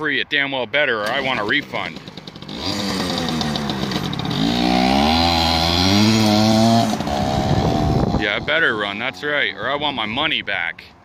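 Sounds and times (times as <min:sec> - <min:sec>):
two-stroke engine revving: 0:01.0 - 0:09.8.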